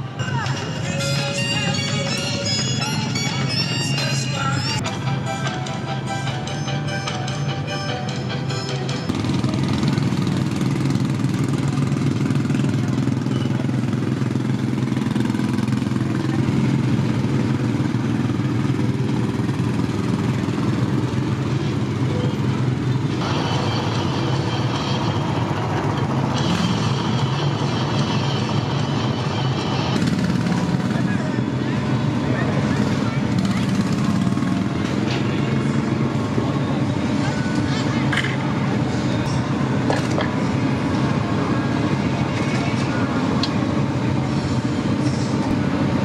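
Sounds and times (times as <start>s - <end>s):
high steady tone: 0.0s - 9.6s
low engine rumble: 0.0s - 46.0s.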